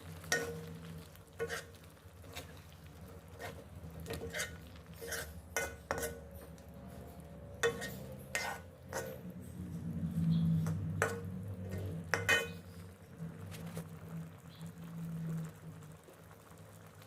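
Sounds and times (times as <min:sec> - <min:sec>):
utensil stirring curry in a pot: 0:00.0 - 0:17.0
utensil knocking and scraping pot: 0:00.2 - 0:12.8.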